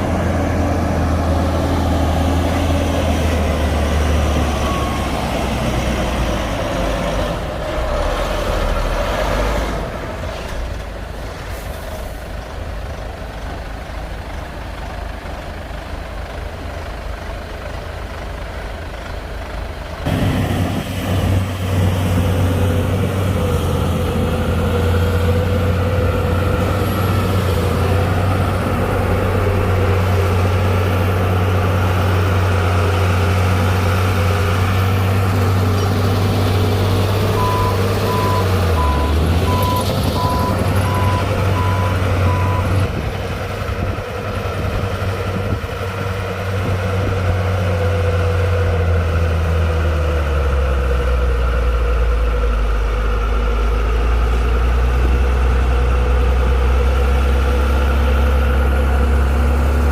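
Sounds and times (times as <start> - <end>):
diesel machinery engine hum: 0.0 - 59.9
reversing alarm beeping: 37.4 - 42.8.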